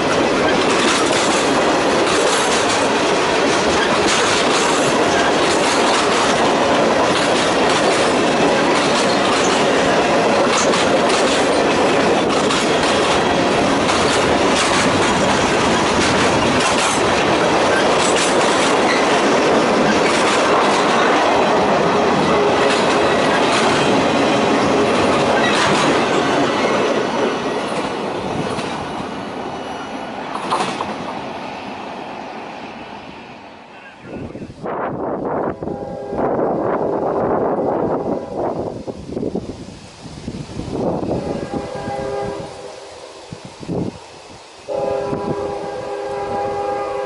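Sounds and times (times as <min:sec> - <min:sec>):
wheels clicking over rail joints: 0:00.0 - 0:29.0
freight train wheels rumbling: 0:00.0 - 0:47.0.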